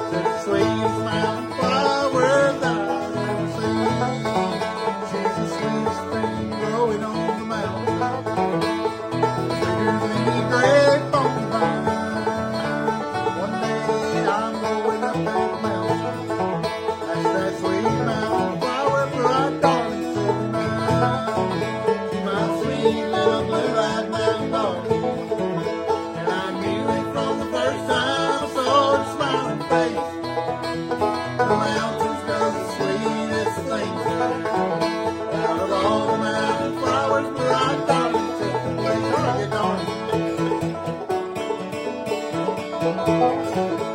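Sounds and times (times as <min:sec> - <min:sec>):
banjo picking fast notes: 0:00.0 - 0:43.9
guitar accompaniment: 0:00.0 - 0:43.9.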